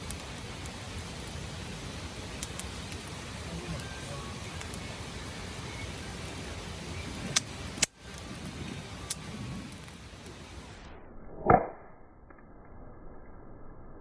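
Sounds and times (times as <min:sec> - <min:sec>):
bonfire hissing and popping: 0:00.0 - 0:11.0.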